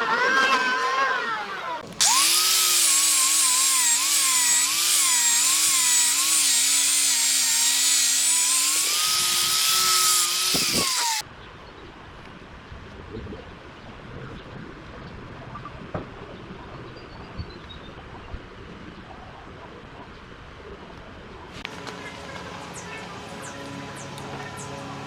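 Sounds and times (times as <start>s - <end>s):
power tool cutting wood: 0.2s - 11.2s.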